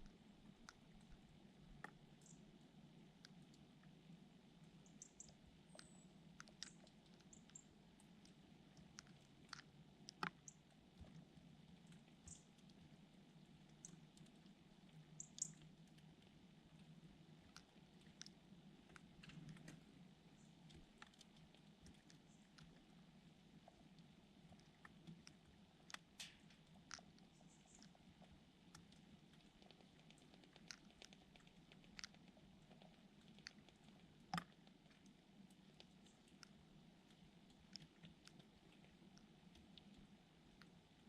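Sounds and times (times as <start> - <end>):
faint clicks and taps: 0.0 - 2.4, 4.6 - 41.0
small birds chirping: 2.1 - 2.5, 4.6 - 10.7, 12.2 - 12.6, 15.1 - 15.7, 26.8 - 28.1.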